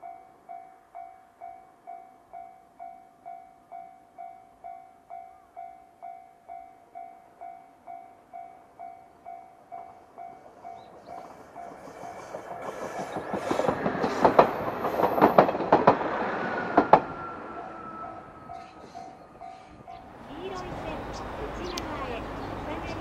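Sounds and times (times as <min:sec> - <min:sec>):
diesel railcar passing: 0:07.7 - 0:23.0
train wheels clacking on rail joints: 0:09.8 - 0:17.2.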